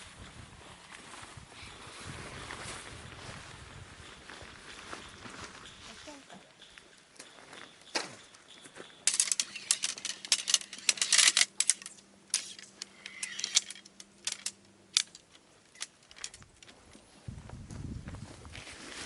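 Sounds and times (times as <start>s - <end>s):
sharp clicks and clatters: 8.5s - 16.7s.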